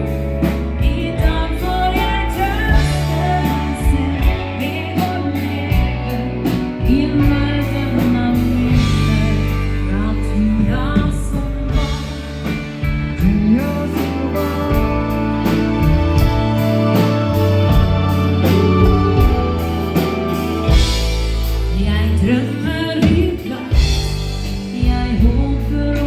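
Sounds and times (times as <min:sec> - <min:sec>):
steady drum beat: 0:00.0 - 0:09.6, 0:11.7 - 0:22.0
bass: 0:00.0 - 0:26.0
guitar: 0:00.0 - 0:26.0
person singing: 0:00.0 - 0:26.0.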